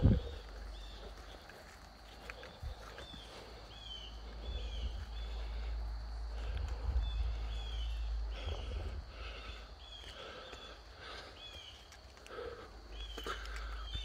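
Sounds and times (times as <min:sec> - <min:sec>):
low microphone rumble: 0:00.0 - 0:01.1, 0:02.5 - 0:11.1.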